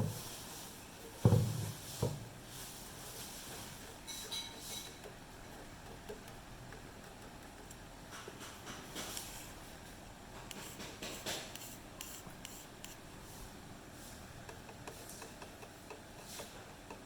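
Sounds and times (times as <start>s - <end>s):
scraping and rubbing of hand work: 0.0s - 17.0s
light regular ticks: 4.9s - 9.6s, 14.5s - 17.0s.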